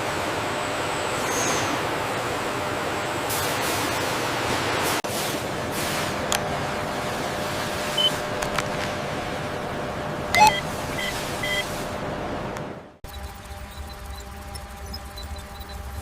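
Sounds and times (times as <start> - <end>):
factory machine noise: 0.0 - 16.0
faint hum: 6.4 - 16.0
short high electronic beeps: 10.4 - 11.7.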